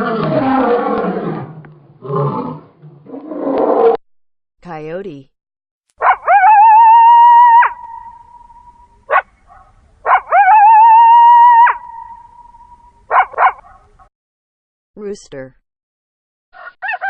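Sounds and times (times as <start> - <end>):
coyote howling: 6.0 - 13.6
coyote yips: 6.0 - 13.9.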